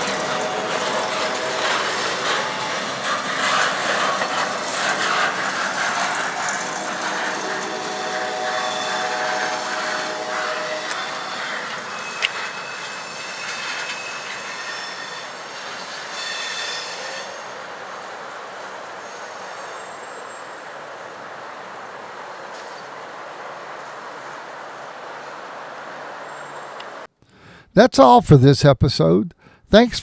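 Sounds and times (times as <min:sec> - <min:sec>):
rail noise: 0:00.0 - 0:27.1
train wheels squealing on rails: 0:00.0 - 0:27.1.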